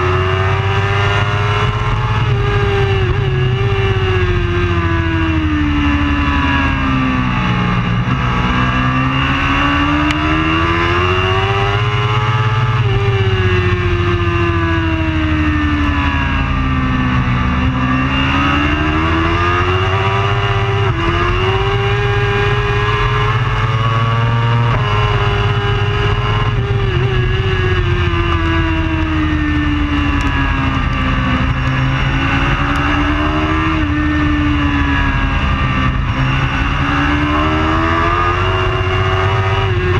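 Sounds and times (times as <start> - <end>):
superbike engine accelerating: 0.0 - 39.9
steady rush of noise: 16.3 - 39.9.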